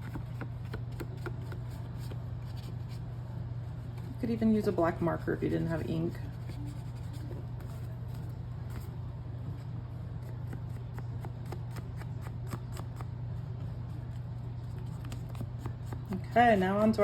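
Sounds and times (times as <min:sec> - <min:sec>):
steady low hum: 0:00.0 - 0:17.0
paper and tools ticking and rubbing: 0:06.2 - 0:08.9.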